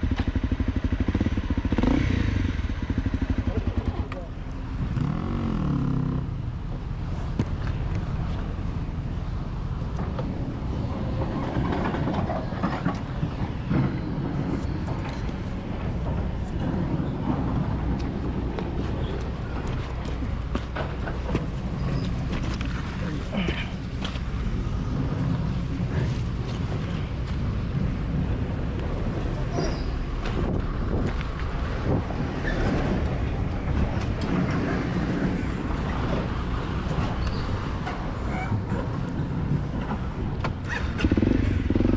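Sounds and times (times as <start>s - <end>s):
dirt bike engine running: 0.0s - 6.3s, 39.4s - 41.9s.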